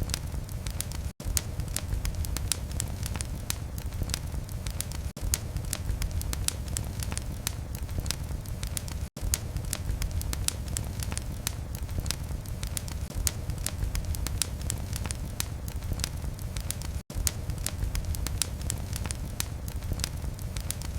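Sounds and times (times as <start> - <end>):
fire crackling and popping: 0.0 - 20.9
low rumble of flame: 0.0 - 20.9.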